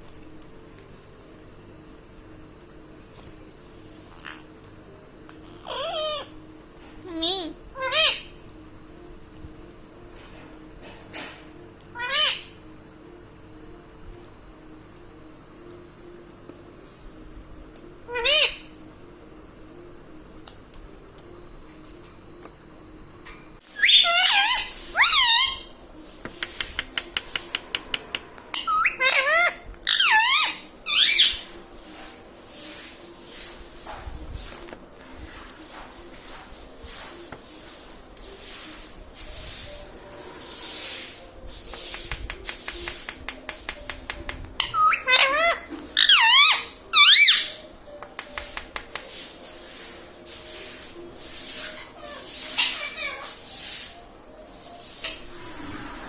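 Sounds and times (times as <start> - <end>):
parakeet squeaky high calls: 5.4 - 6.4, 7.1 - 8.4, 11.9 - 12.6, 18.1 - 18.8, 23.7 - 25.8, 28.5 - 31.5, 44.6 - 47.7, 51.6 - 53.4.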